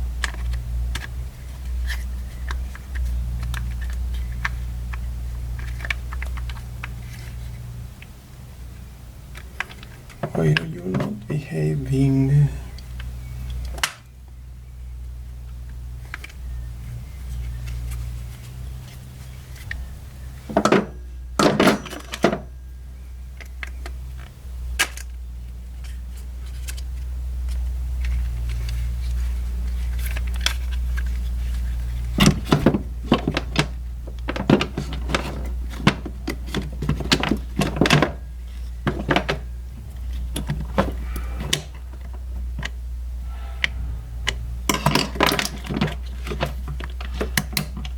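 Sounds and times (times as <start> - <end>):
plastic parts clicking and knocking: 29.7 - 42.8
low hum: 38.2 - 47.1.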